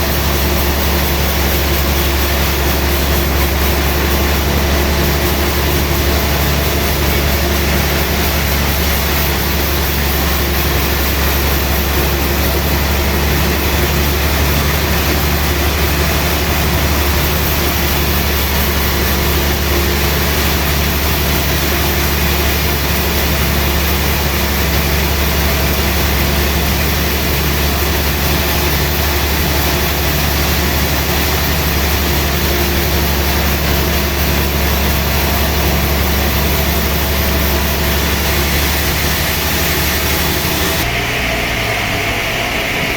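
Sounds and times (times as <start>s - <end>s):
sawmill machinery engine drone: 0.0s - 42.9s.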